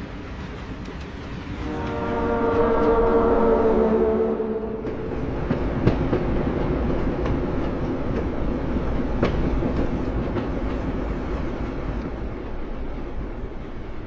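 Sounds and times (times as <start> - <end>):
wheels clicking over rail joints: 0.0 - 2.0, 4.9 - 14.0
train rumbling on rails: 0.0 - 14.0.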